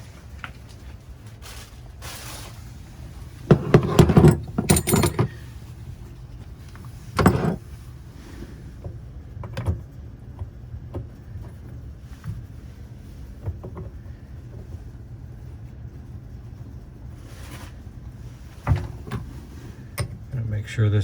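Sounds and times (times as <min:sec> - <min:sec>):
metal parts clattering and clinking: 0:03.5 - 0:05.5, 0:07.2 - 0:07.6.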